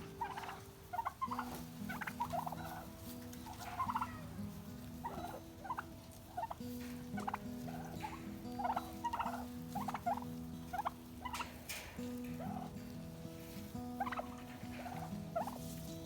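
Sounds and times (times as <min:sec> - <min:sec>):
turkeys gobbling: 0:00.0 - 0:15.9.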